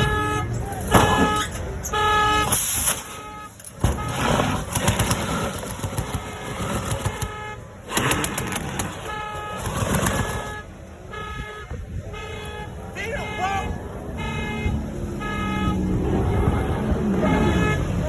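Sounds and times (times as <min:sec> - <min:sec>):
car horn honking: 0:00.0 - 0:18.0
noisy street sound: 0:00.0 - 0:18.0.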